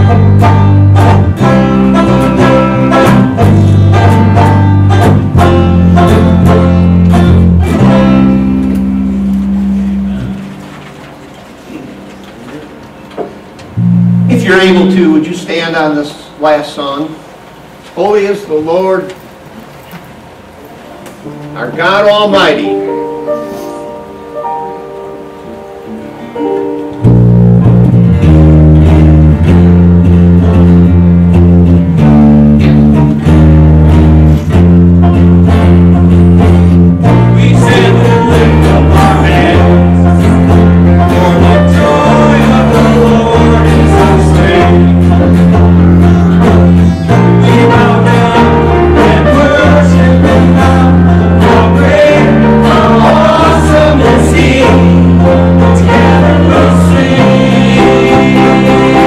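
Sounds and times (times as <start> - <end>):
worship band playing: 0.0 - 59.0
voices singing: 37.0 - 59.0.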